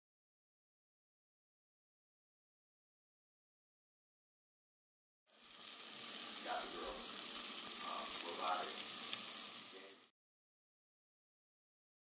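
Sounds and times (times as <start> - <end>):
fish sizzling in a frying pan: 5.3 - 10.1.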